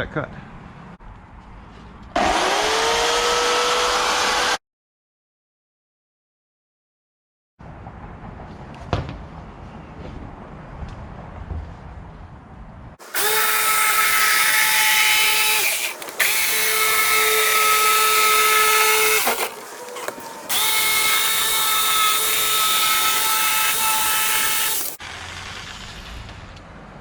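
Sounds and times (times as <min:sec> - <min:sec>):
electric saw motor whine: 0:02.2 - 0:04.6, 0:13.1 - 0:26.6.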